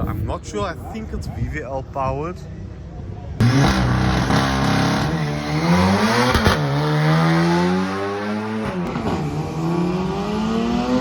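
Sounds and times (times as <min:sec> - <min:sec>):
race car accelerating hard: 0:03.4 - 0:11.0.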